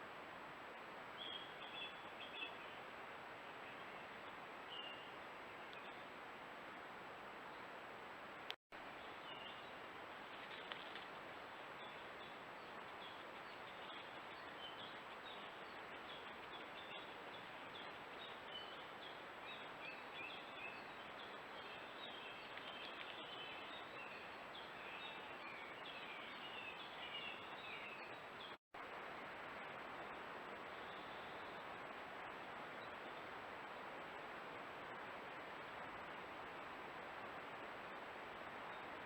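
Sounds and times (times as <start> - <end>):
microphone hiss: 0.0 - 39.0
faint bird chirping: 1.2 - 2.9, 8.9 - 11.0, 11.8 - 28.6, 30.5 - 33.4.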